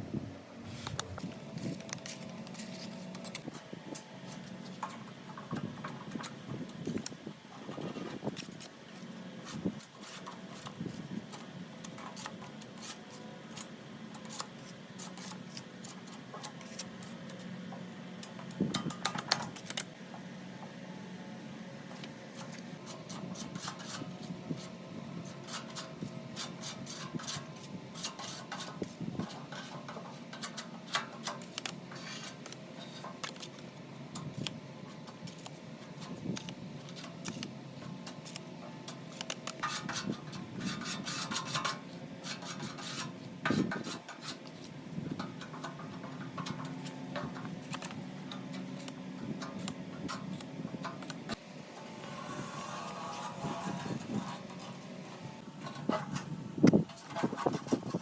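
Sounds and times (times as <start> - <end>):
steady low hum: 0.0 - 58.0
scraping and rubbing metal: 0.7 - 8.8, 22.3 - 33.6, 34.2 - 58.0.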